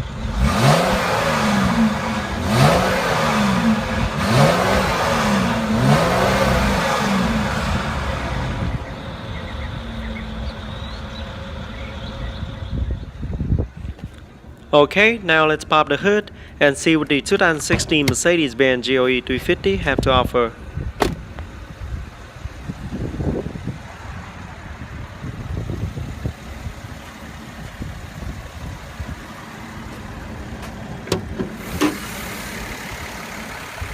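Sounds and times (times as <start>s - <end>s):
car engine revving: 0.0s - 12.7s, 23.4s - 33.9s
car engine idling: 16.0s - 33.9s.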